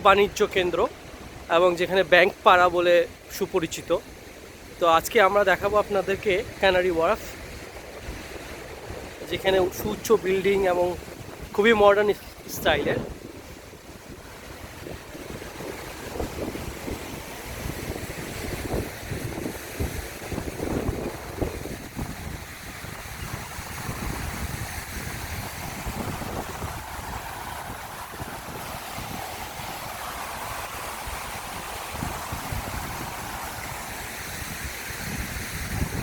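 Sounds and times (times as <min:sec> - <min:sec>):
wind buffeting microphone: 0:07.3 - 0:36.0.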